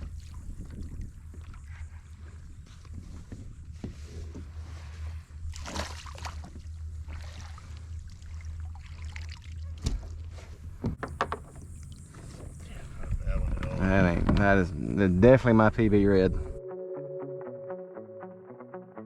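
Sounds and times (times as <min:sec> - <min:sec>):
water splashing and trickling: 0:00.0 - 0:03.9, 0:04.6 - 0:13.3
wind rumble on microphone: 0:00.0 - 0:08.2, 0:09.9 - 0:16.6
sharp knocks: 0:10.8 - 0:11.6.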